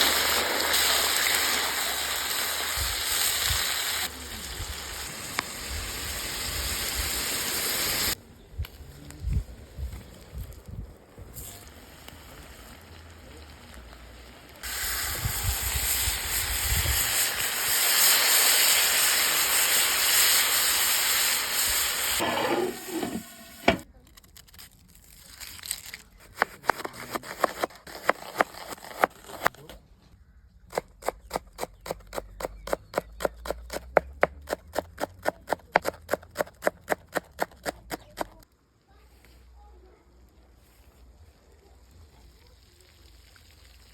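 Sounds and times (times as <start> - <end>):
food sizzling in hot fat: 0.0 - 8.2, 11.3 - 23.9.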